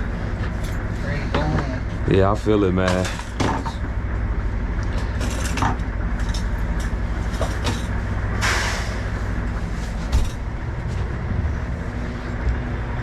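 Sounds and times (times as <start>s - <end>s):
diesel truck engine idling: 0.0s - 13.0s
short hiss: 8.4s - 9.0s.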